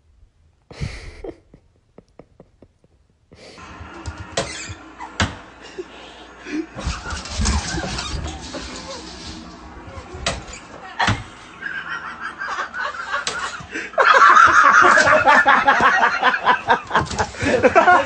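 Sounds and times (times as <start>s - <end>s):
people laughing: 5.0s - 9.0s, 10.8s - 18.0s.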